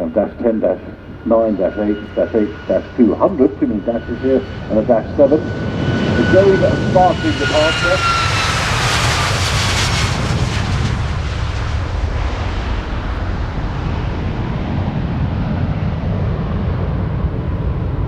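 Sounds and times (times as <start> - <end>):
jet engine roar: 0.0 - 18.0.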